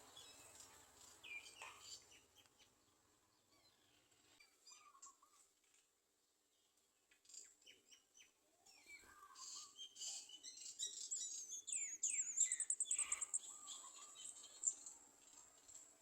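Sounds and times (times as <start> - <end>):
birds chirping: 0.0 - 5.4, 7.3 - 16.0.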